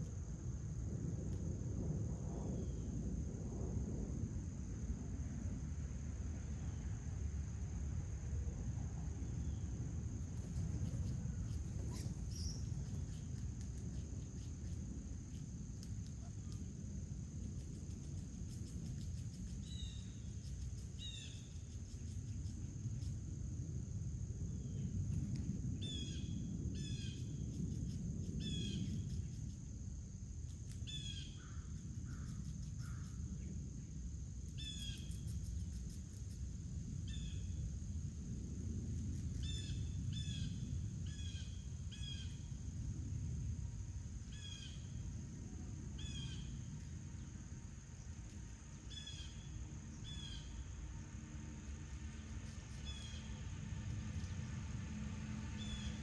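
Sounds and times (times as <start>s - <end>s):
high insect drone: 0.0s - 56.0s
steady low rumble: 0.0s - 56.0s
bird chirping: 10.4s - 15.4s, 17.8s - 23.1s, 34.5s - 36.4s, 46.0s - 47.3s, 52.2s - 53.4s, 55.6s - 56.0s.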